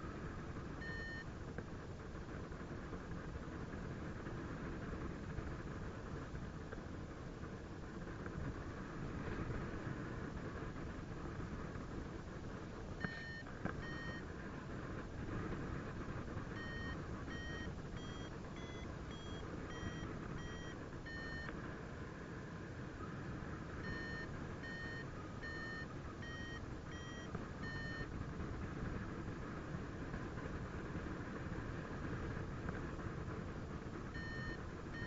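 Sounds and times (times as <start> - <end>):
variometer beeping: 0.8 - 1.3, 13.0 - 14.3, 16.2 - 21.6, 23.0 - 28.2, 34.0 - 35.0.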